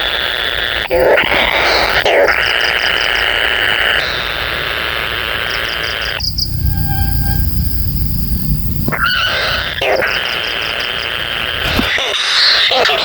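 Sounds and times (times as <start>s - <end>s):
steady hissing buzz: 0.0s - 12.0s
low rumble: 5.5s - 11.0s.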